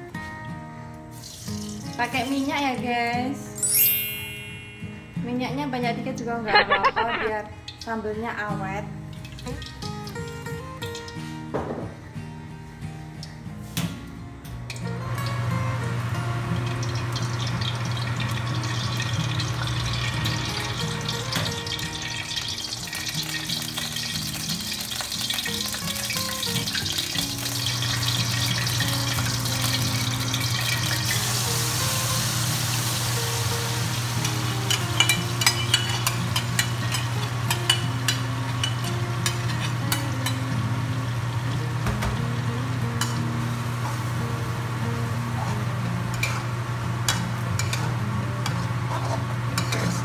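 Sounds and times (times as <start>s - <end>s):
oil sizzling in a wok: 1.0s - 2.8s, 6.5s - 11.5s, 14.8s - 49.8s
metal spatula scraping a wok: 48.5s - 50.0s.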